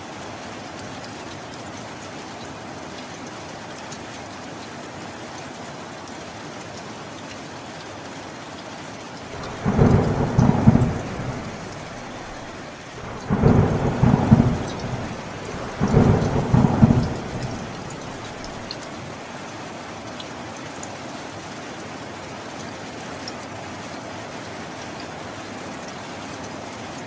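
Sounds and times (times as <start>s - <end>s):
steady rain: 0.0s - 27.0s
low thunder rolls: 9.4s - 18.7s.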